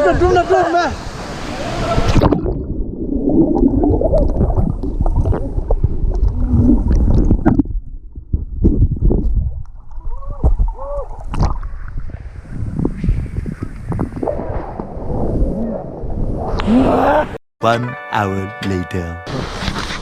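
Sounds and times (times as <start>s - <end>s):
underwater gurgling and sloshing: 1.0s - 16.8s
dull knocks underwater: 3.6s - 12.0s.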